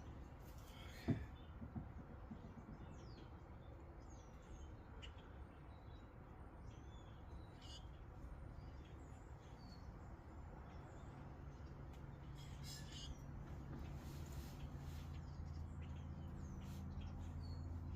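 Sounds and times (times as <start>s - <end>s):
faint bird chirps: 6.7s - 10.0s, 12.1s - 17.9s.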